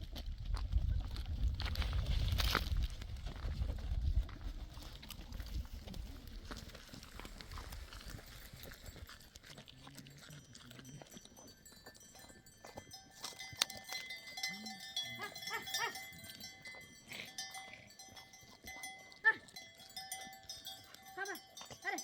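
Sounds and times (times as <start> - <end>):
livestock bells ringing: 10.4 - 22.0
sheep and goats bleating: 12.9 - 22.0.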